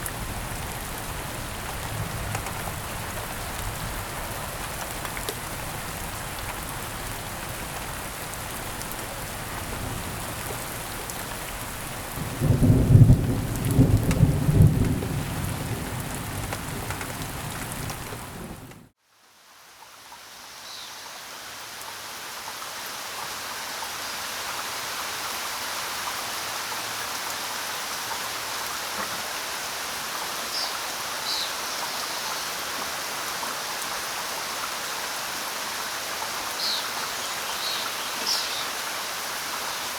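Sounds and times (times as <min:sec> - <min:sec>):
steady rain falling: 0:00.0 - 0:39.9
thunder rolling: 0:12.2 - 0:18.9.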